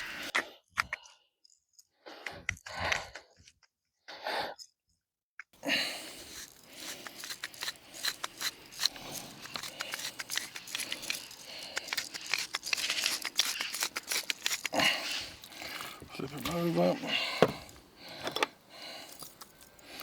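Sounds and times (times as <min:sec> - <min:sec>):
salt grinder crunching: 0:05.6 - 0:20.0.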